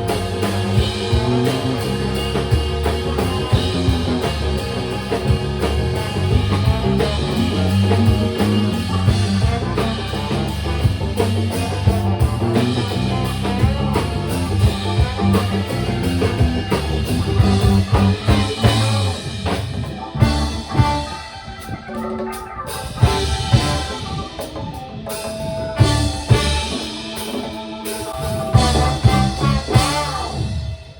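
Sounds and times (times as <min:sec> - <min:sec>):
bass guitar: 0:00.0 - 0:30.9
drum kit: 0:00.0 - 0:30.9
electric guitar: 0:00.0 - 0:30.9.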